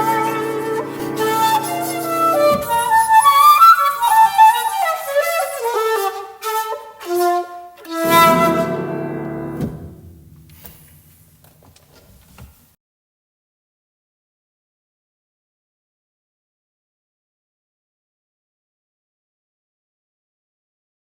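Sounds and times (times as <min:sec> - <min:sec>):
piano playing: 0:00.0 - 0:03.8, 0:07.9 - 0:11.8
bamboo flute: 0:00.0 - 0:09.9.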